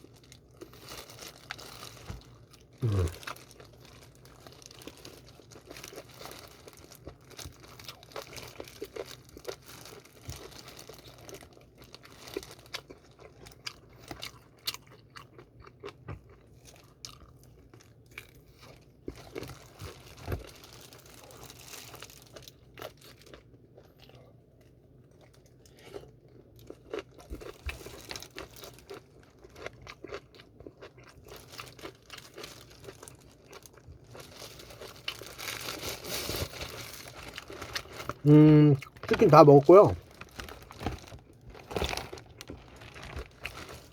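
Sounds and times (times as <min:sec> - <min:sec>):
person biting and chewing: 0:02.8 - 0:03.6, 0:26.8 - 0:33.1.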